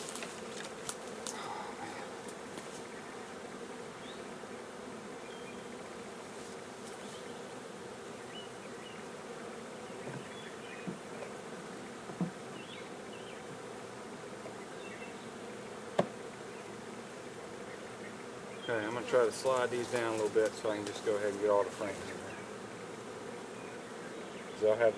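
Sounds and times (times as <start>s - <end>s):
bees buzzing: 0.0s - 24.9s.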